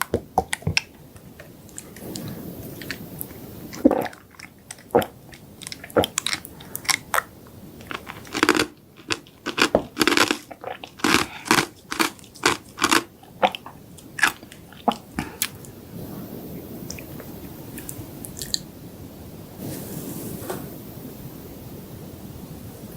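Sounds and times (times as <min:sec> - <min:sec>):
chewing and crunching: 0:00.0 - 0:15.8.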